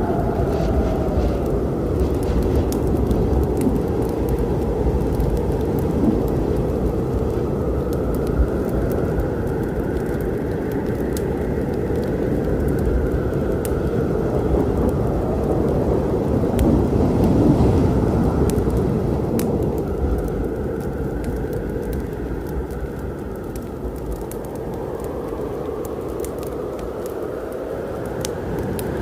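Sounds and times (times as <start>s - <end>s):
rolling thunder: 0.0s - 11.0s
steady rain: 0.0s - 29.0s
wood fire crackling: 0.0s - 29.0s.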